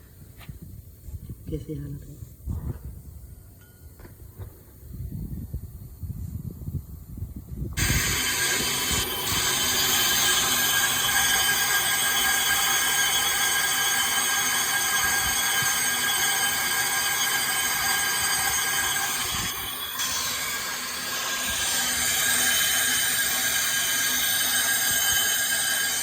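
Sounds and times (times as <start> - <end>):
lathe cutting tool squealing: 7.8 - 26.0.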